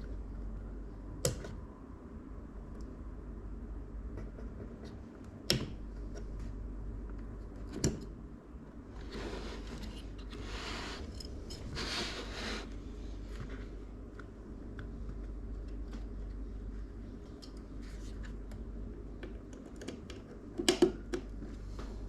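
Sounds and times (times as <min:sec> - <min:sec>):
rustling and scraping: 0:08.9 - 0:14.0, 0:17.6 - 0:18.5.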